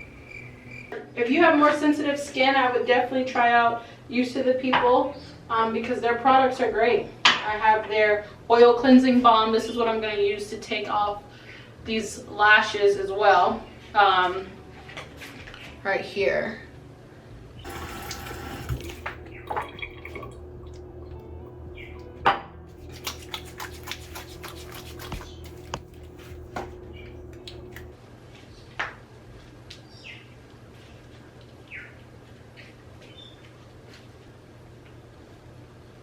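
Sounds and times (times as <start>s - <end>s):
steady low hum: 0.0s - 1.0s, 16.2s - 29.4s
running water splash: 17.7s - 20.8s, 22.8s - 26.4s
containers clicking and tapping: 22.8s - 26.7s.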